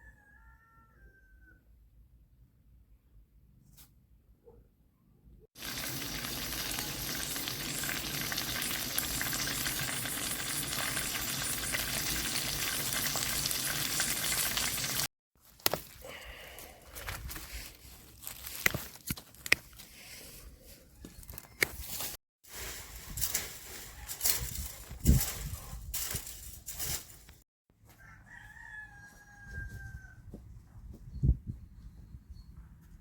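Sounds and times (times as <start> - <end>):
food sizzling in a frying pan: 5.6 - 15.1.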